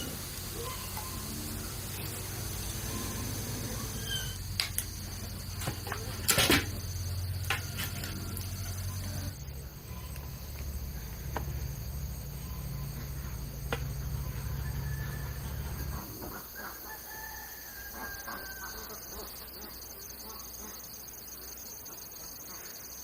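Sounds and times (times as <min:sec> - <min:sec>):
low steady rumble: 0:00.0 - 0:16.4
crickets chirring: 0:00.0 - 0:23.0.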